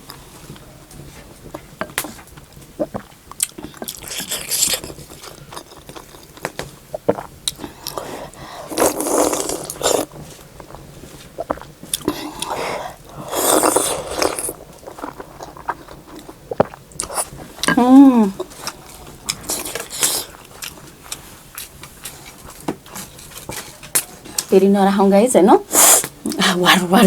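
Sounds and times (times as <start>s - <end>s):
chewing: 0.1s - 24.5s
slurping: 2.8s - 23.8s.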